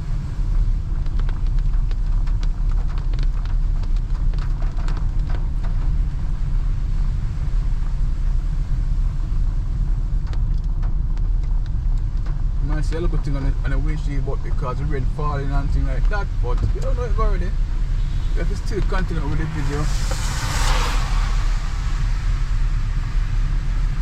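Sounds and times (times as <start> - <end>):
road rumble inside moving car: 0.0 - 24.0
light ticks: 0.6 - 5.9, 10.2 - 14.8.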